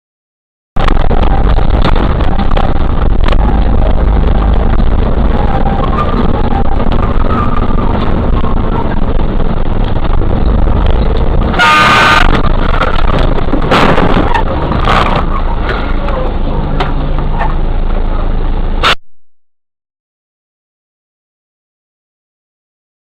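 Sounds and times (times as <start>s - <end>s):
vehicle road and engine noise: 0.8s - 19.0s
car horn: 11.4s - 12.6s.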